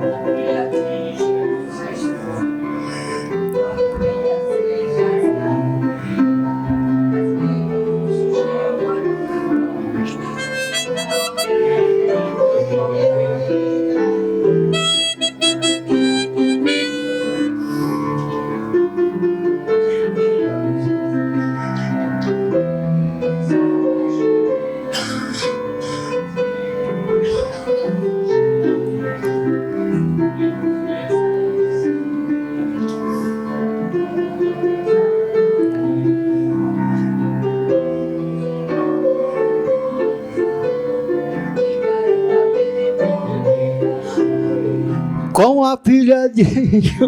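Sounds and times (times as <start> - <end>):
keyboard chords: 0.0 - 45.4
reedy melody instrument: 8.3 - 44.9.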